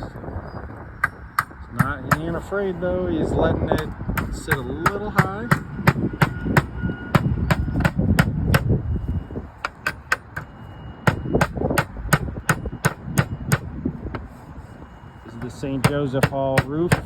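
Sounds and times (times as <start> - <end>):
hammer tapping on slate: 1.0 - 2.5, 3.7 - 8.7, 9.6 - 10.5, 11.1 - 14.3, 15.4 - 17.0.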